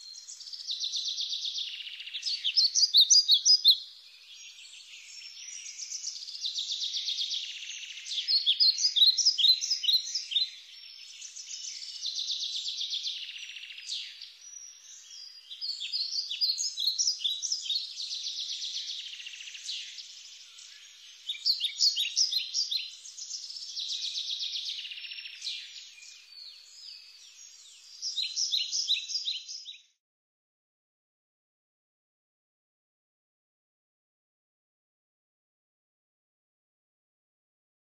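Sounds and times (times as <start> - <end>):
songbird singing trills: 0.0 - 29.9.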